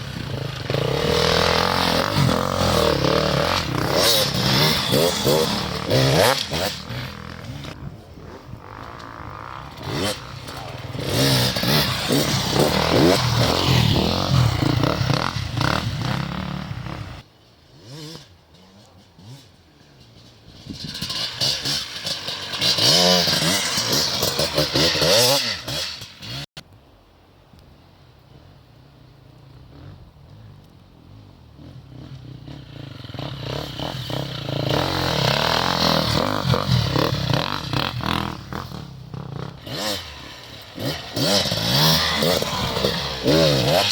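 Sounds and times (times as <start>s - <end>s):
motorcycle engine revving: 0.0s - 26.5s, 29.1s - 43.9s.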